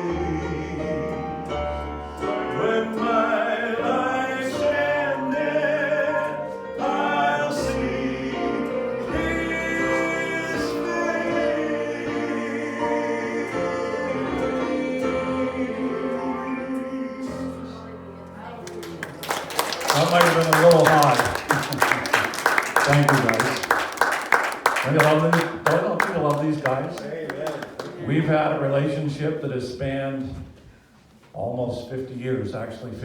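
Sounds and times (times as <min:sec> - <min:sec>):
vocal group singing in harmony: 0:00.0 - 0:18.2.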